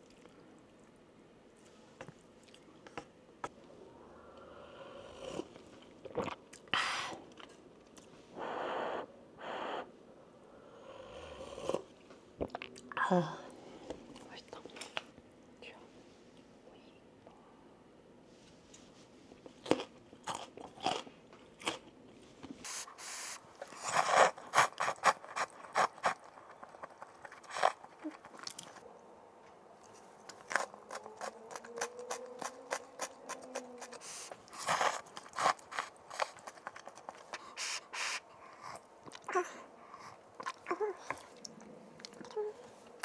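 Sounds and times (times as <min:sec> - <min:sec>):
person chewing crunchy food: 0:19.5 - 0:21.9, 0:22.6 - 0:28.9, 0:29.8 - 0:42.4.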